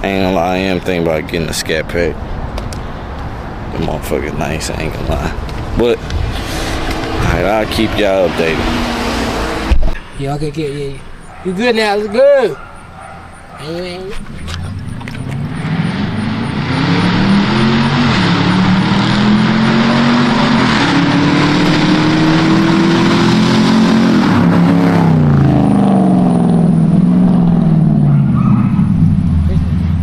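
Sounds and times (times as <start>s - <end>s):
wind and road noise: 0.0s - 30.0s
car engine accelerating: 3.8s - 10.0s, 14.1s - 30.0s.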